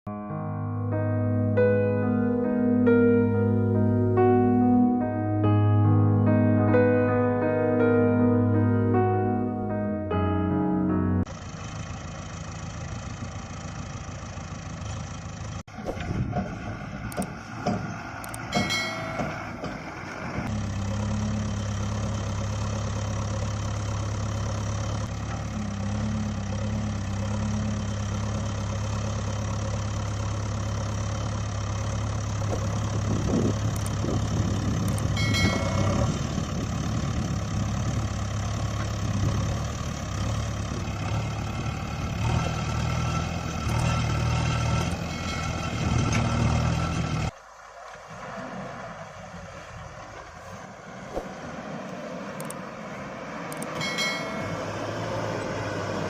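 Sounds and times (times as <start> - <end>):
engine running: 1.9 - 56.0
knocks and clatter: 15.8 - 20.0.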